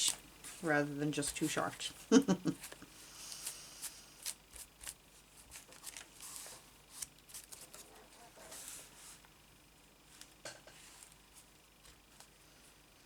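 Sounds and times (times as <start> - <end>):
paper rustling: 2.6 - 9.3.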